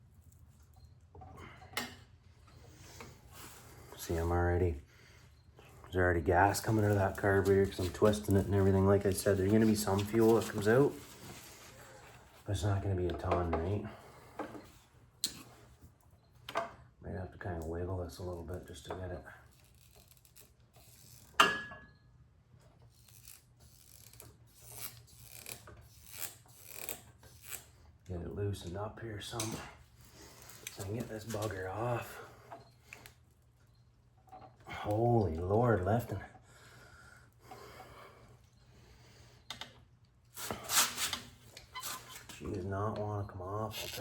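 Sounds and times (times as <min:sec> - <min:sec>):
rubber hose rubbing and scraping: 0:05.9 - 0:12.8, 0:40.3 - 0:42.6, 0:43.7 - 0:44.0.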